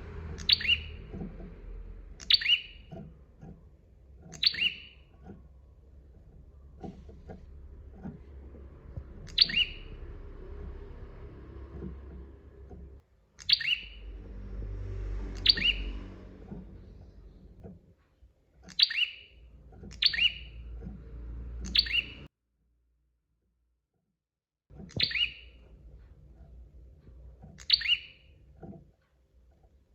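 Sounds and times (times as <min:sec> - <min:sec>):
bird chirping: 0:00.0 - 0:17.7, 0:18.6 - 0:22.3, 0:24.8 - 0:25.7, 0:27.4 - 0:28.8
low background rumble: 0:00.0 - 0:22.3.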